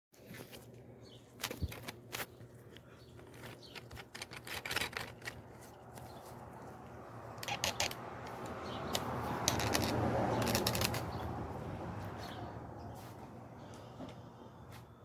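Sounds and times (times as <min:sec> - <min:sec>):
metal clicks and clanks: 0:07.4 - 0:08.0.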